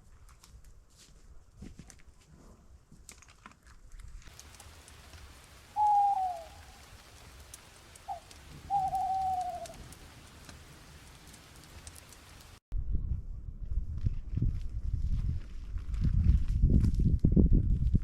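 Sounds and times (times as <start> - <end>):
steady hiss: 4.3 - 12.6
bird calling: 4.5 - 12.4.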